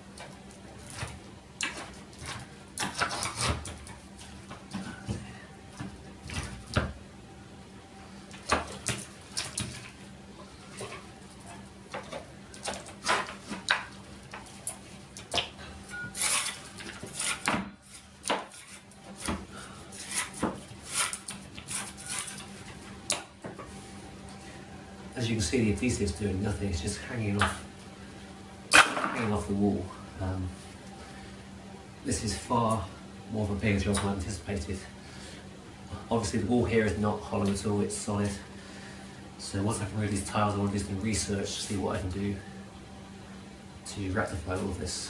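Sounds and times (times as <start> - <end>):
hand tool scraping tiles: 16.2 - 19.3, 20.0 - 22.5.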